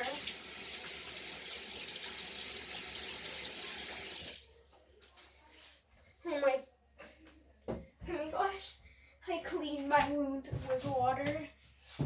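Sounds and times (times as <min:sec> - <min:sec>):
tap water running into sink: 0:00.0 - 0:04.5.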